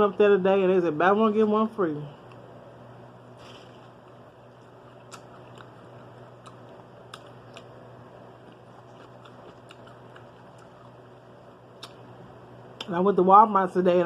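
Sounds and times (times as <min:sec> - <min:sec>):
steady low hum: 0:00.0 - 0:14.0
person chewing crunchy food: 0:03.4 - 0:12.2
mouth clicks: 0:11.8 - 0:12.0.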